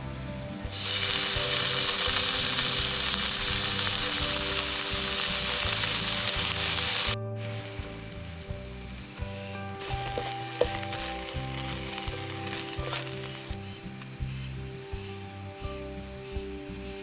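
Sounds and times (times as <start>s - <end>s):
background music: 0.0s - 17.0s
food sizzling: 0.7s - 7.2s, 8.1s - 13.6s.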